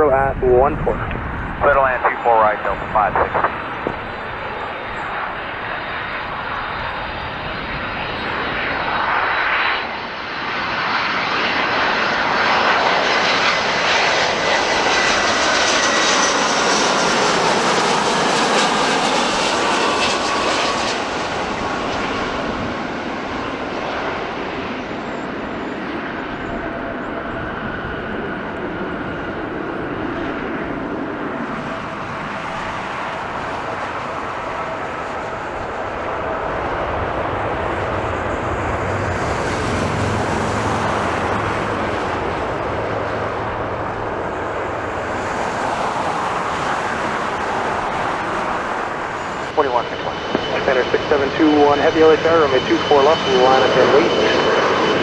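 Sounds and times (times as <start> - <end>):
jet airliner passing: 0.0 - 55.0
high fan whine: 31.5 - 49.6.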